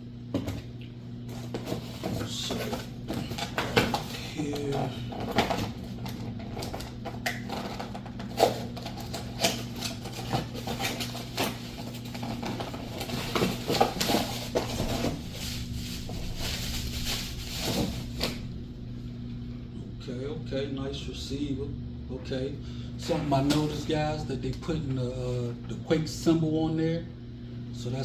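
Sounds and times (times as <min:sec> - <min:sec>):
steady low hum: 0:00.0 - 0:28.0
packaging rustling and crinkling: 0:01.3 - 0:18.4.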